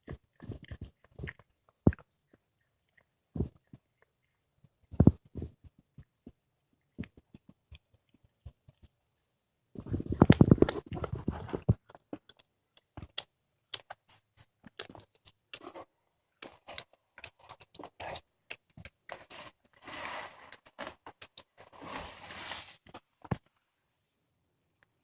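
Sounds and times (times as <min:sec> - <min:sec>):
cat crunching bones: 0:00.0 - 0:04.3, 0:10.0 - 0:15.8, 0:16.4 - 0:21.7.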